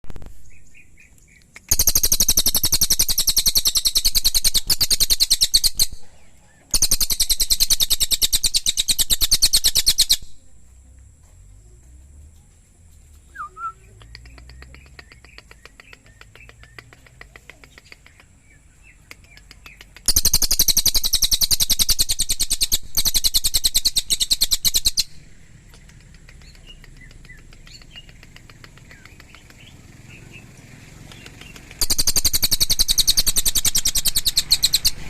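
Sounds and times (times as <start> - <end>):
songbird high rapid trills: 0.4 - 10.4, 13.5 - 35.0
bird quick chips: 13.1 - 30.3.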